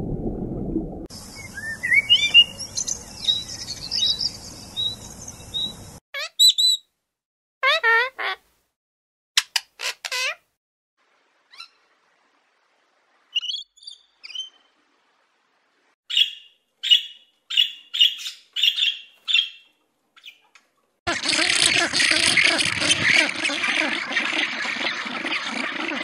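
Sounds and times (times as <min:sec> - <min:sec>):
budgerigar chirping: 0:03.2 - 0:06.8, 0:16.1 - 0:19.6.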